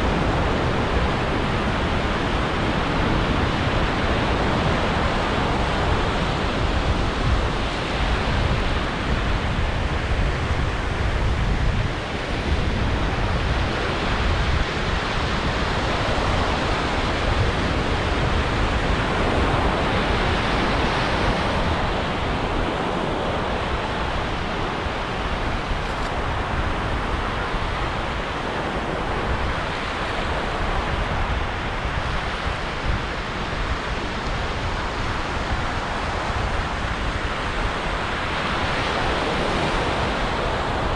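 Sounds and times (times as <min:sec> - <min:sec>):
waves breaking on a beach: 0:00.0 - 0:40.9.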